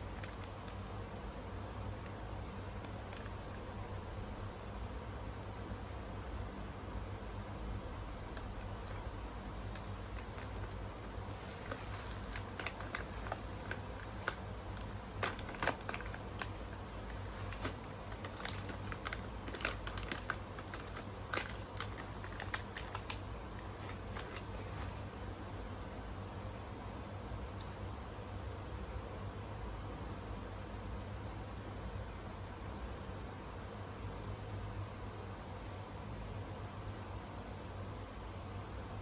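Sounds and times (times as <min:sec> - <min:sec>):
steady low hum: 0:00.0 - 0:39.0
eating clicks and crackles: 0:08.3 - 0:24.6.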